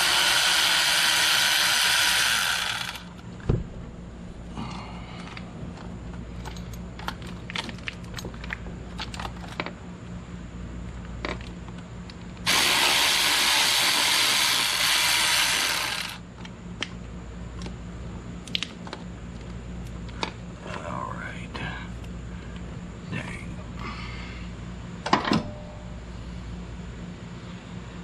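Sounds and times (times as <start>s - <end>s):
ratchet clicking: 0.0s - 3.1s
loud steady hiss: 0.0s - 3.2s, 12.4s - 16.2s.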